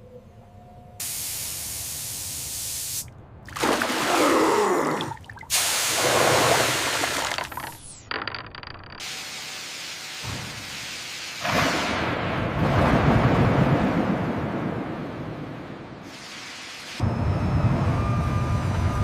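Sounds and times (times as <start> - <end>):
hissing rush of water spray: 4.8 - 7.2.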